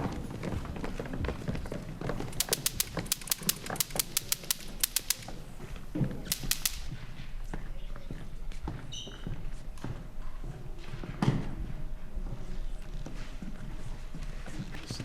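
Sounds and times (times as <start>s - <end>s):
sharp clicks: 2.3s - 7.0s.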